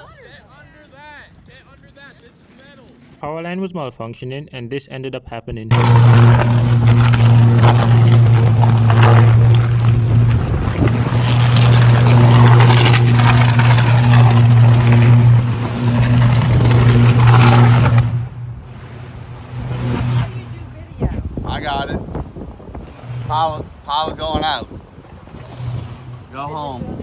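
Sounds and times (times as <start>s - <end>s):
power line electrical buzz: 5.7s - 26.5s.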